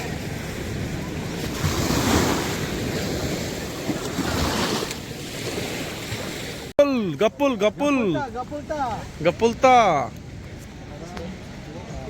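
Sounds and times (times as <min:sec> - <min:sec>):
wind buffeting microphone: 0:00.0 - 0:06.7
sea waves washing: 0:00.0 - 0:12.0.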